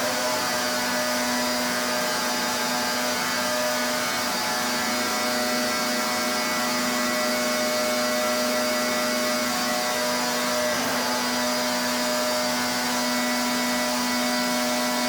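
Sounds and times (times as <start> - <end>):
pressure washer machine hum: 0.0 - 15.0
pressure washer water jet hissing: 0.0 - 15.0.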